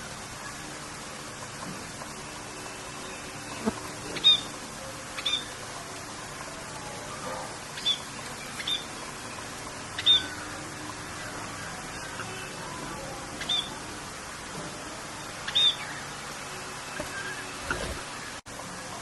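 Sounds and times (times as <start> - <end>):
rain hissing: 0.0 - 19.0
sharp bird calls: 13.4 - 13.8, 15.4 - 16.1.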